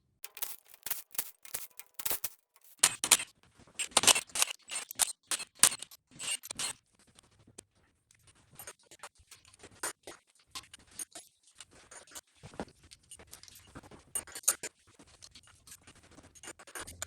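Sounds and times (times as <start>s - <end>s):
metal scraping: 0.2s - 3.0s
ratchet wrench clicking: 0.3s - 2.9s.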